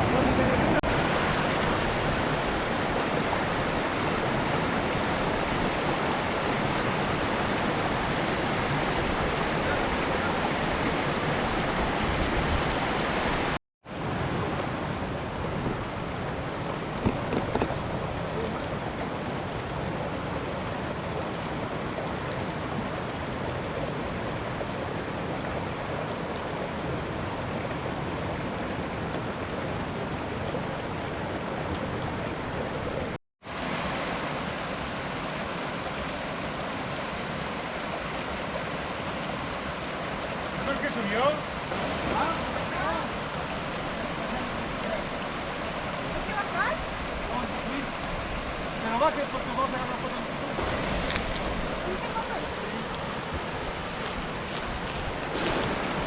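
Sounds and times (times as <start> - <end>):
fast-flowing water rushing: 0.0 - 56.0.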